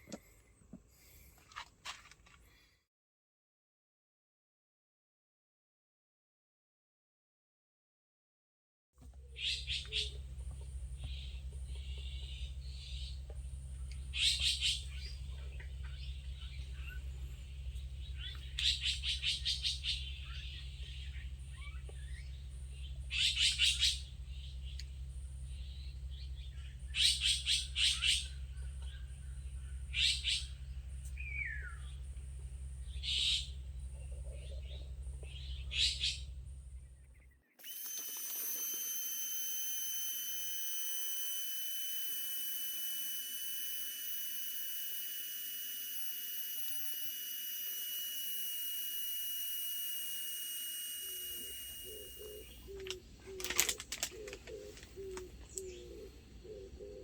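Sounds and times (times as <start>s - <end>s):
low hum: 9.0s - 57.0s
birds chirping: 9.2s - 37.8s, 40.0s - 57.0s
thin high tone: 37.6s - 53.6s.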